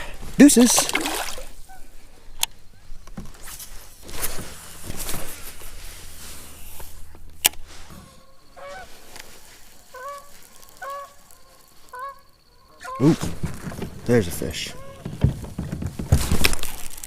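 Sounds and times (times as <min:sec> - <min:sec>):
rustling: 0:03.2 - 0:12.3, 0:13.0 - 0:17.0
geese honking: 0:07.9 - 0:13.4, 0:14.5 - 0:15.2.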